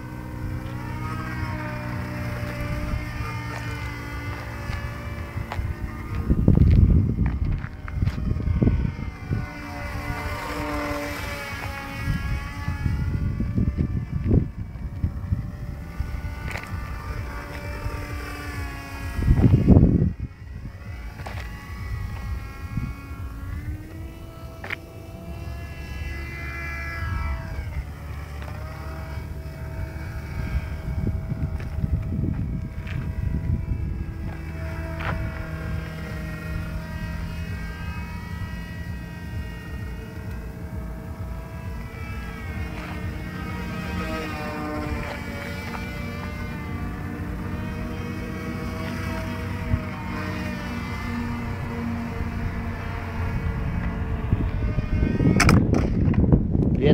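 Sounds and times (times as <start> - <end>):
low rumble: 0.0 - 56.9
model airplane engine drone: 0.0 - 56.9
wind buffeting microphone: 0.0 - 56.9.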